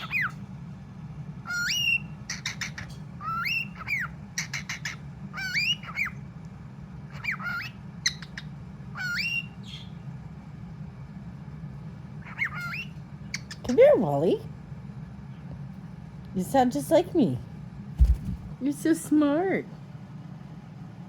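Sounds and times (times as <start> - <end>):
cockatiel whistling and squawking: 0.0 - 0.4, 1.5 - 6.2, 7.1 - 9.9, 12.2 - 13.6.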